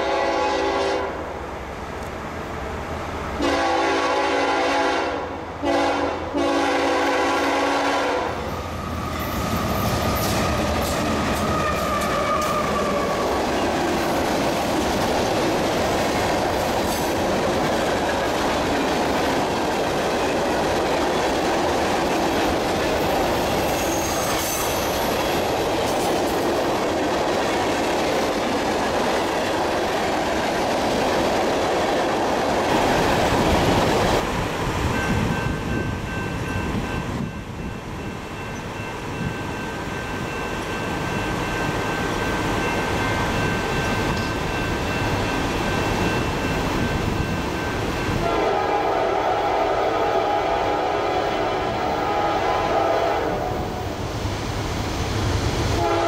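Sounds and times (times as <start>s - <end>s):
locomotive air horn blasts: 0.0s - 1.2s, 3.4s - 8.4s, 48.2s - 53.8s, 55.8s - 56.0s
train wheels rumbling on rail: 0.0s - 56.0s
clickety-clack over rail joints: 9.0s - 37.7s, 42.5s - 48.4s
wheel squeals: 23.4s - 25.5s.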